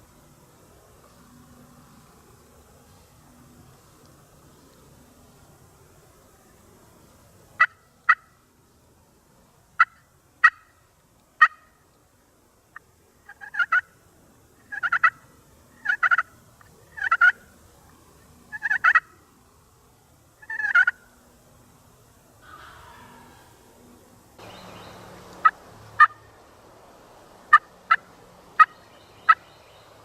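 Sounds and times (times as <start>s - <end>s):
turkey gobbling: 7.6s - 8.3s, 9.8s - 10.7s, 11.4s - 11.7s, 13.2s - 13.9s, 14.6s - 15.2s, 15.8s - 16.3s, 16.9s - 17.4s, 18.5s - 19.2s, 20.4s - 21.0s, 22.4s - 23.5s, 25.4s - 26.2s, 27.5s - 29.4s
sharp turkey call notes: 7.6s - 8.4s, 9.8s - 10.8s, 11.4s - 11.8s, 12.7s - 13.9s, 14.6s - 15.2s, 15.8s - 16.3s, 17.0s - 17.4s, 18.5s - 19.2s, 20.4s - 21.0s, 24.4s - 26.3s, 27.5s - 29.4s.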